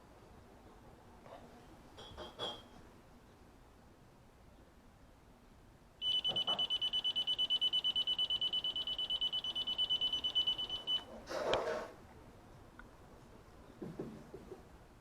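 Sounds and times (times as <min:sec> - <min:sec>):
high-pitched pulsing beep: 0:06.0 - 0:11.0.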